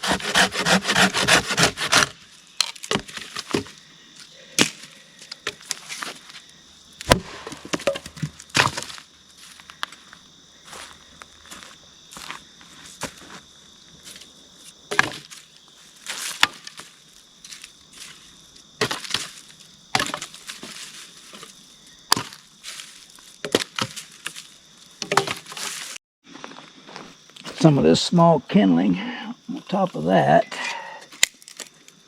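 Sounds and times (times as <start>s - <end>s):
dry sticks cracking and snapping: 4.6s - 6.0s, 31.2s - 32.0s.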